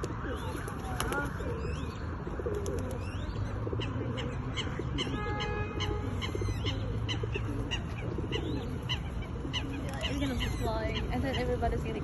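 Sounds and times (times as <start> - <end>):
birds chirping: 0.0 - 12.0
held honking call: 4.9 - 6.5
murmur of voices: 7.2 - 12.0.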